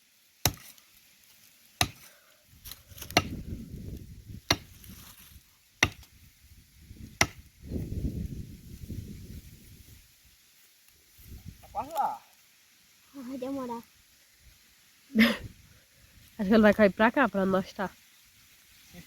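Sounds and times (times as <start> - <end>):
axe chopping tree trunk: 0.4 - 0.8, 1.8 - 3.6, 4.3 - 6.2, 7.0 - 7.5.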